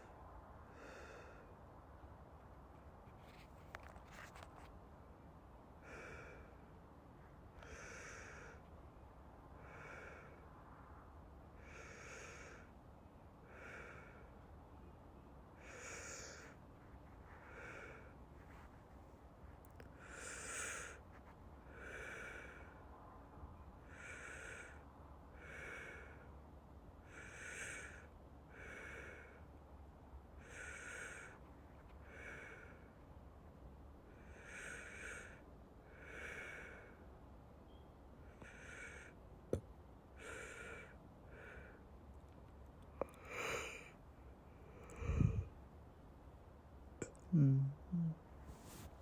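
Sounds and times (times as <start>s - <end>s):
slow breathing: 0.0s - 1.7s, 5.8s - 6.8s, 7.6s - 8.8s, 9.6s - 10.9s, 11.6s - 12.8s, 13.4s - 14.8s, 15.6s - 23.1s, 23.8s - 26.4s, 27.0s - 29.6s, 30.4s - 33.1s, 34.1s - 37.1s, 38.3s - 39.2s, 40.2s - 42.3s, 42.9s - 44.0s, 44.6s - 45.6s.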